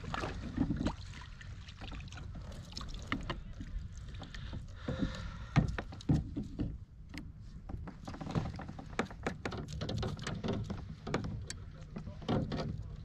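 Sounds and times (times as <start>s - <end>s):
boat engine rumbling: 0.0s - 13.0s
fishing gear clicking and knocking: 4.8s - 12.8s.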